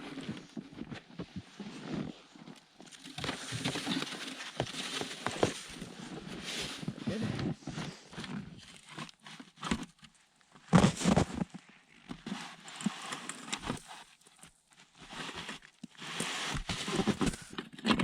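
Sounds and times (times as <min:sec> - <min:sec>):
snow crunching as shovelled: 0:03.2 - 0:08.6, 0:10.7 - 0:11.6, 0:15.0 - 0:17.5.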